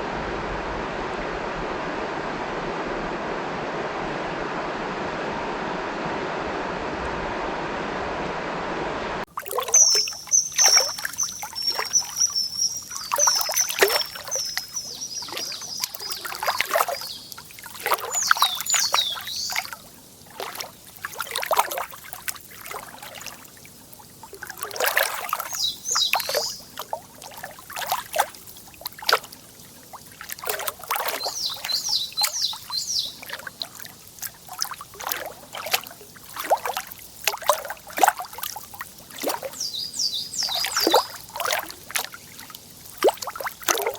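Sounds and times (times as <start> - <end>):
water lapping at shore: 9.3 - 43.9
songbird singing: 9.5 - 20.0, 24.6 - 28.0, 30.5 - 33.9, 39.1 - 42.4.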